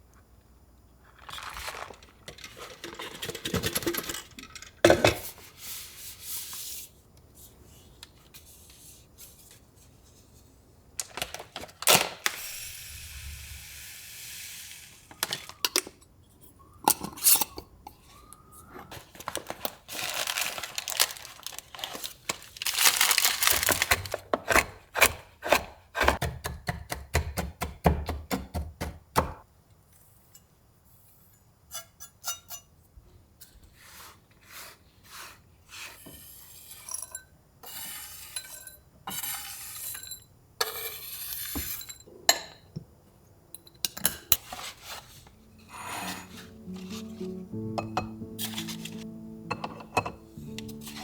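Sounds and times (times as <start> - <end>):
containers and dishes clinking: 43.8 - 51.0
surfaces being rubbed: 44.4 - 47.2.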